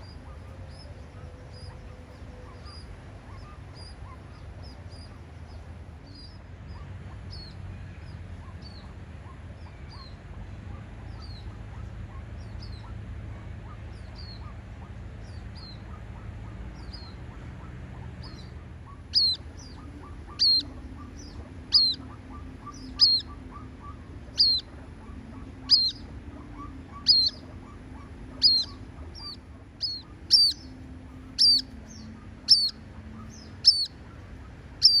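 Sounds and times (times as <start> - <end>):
low background noise: 0.0 - 35.0
bird giving sharp high calls: 18.2 - 35.0.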